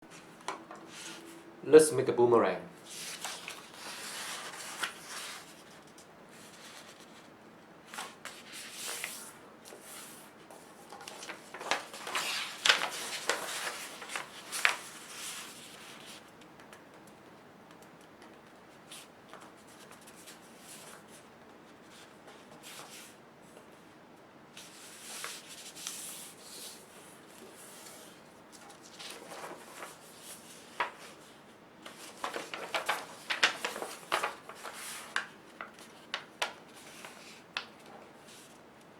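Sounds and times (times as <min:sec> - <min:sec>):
paper rustling and creasing: 0:02.9 - 0:16.7, 0:24.6 - 0:38.6.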